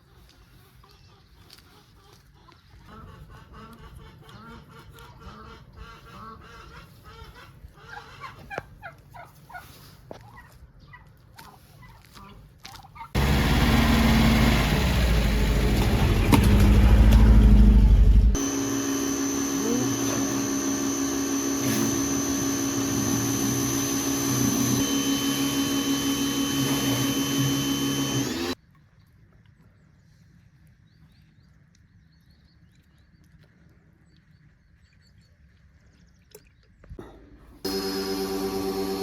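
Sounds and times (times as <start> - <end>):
machine motor humming: 13.2 - 28.6, 37.7 - 39.0.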